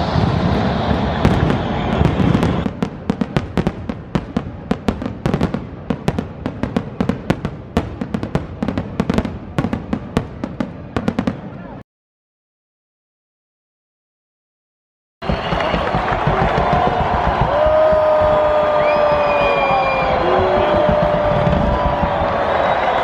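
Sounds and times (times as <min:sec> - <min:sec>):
loud steady rush: 0:00.0 - 0:05.0, 0:15.2 - 0:23.0
fireworks cracking and popping: 0:00.0 - 0:11.4, 0:15.2 - 0:23.0.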